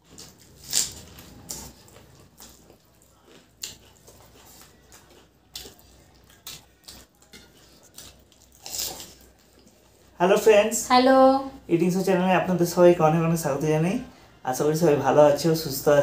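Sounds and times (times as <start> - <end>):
wet chewing and mouth smacks: 0.0 - 10.0.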